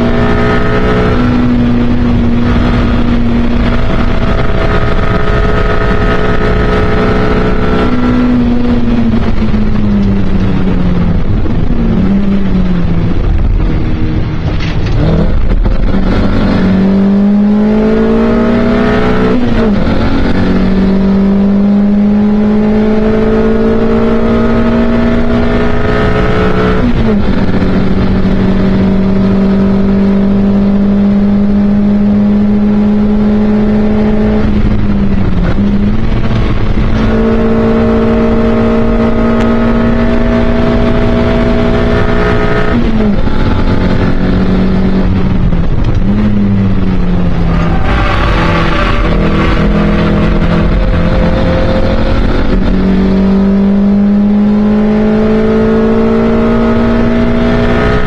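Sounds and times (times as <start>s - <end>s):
race car engine revving: 0.0s - 58.0s
gear upshifts: 34.0s - 58.0s.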